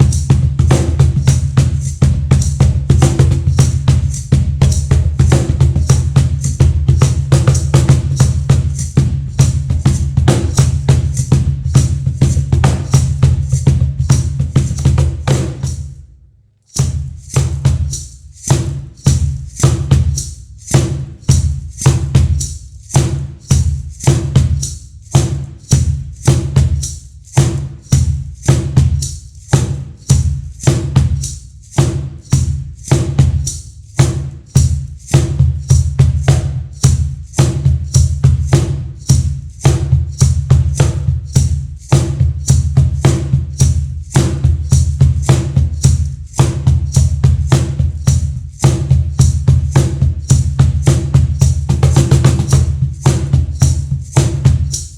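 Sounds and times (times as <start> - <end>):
cajon played by hand: 0.0 - 15.8, 35.0 - 54.9.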